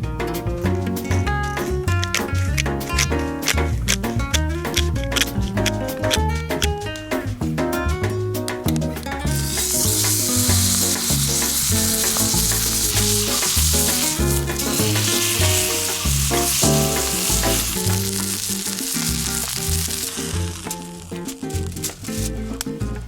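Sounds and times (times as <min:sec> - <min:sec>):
background music with beat: 0:00.0 - 0:23.0
steak sizzling in a pan: 0:09.3 - 0:21.7.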